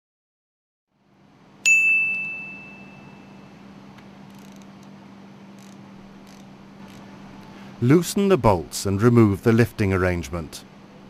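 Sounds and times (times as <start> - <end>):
steady low hum: 1.0 - 11.0
metal clang ringing: 1.7 - 3.5.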